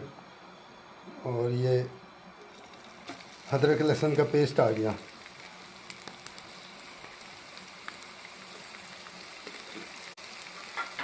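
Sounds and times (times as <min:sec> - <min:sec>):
paste sizzling in hot oil: 0:02.4 - 0:11.0.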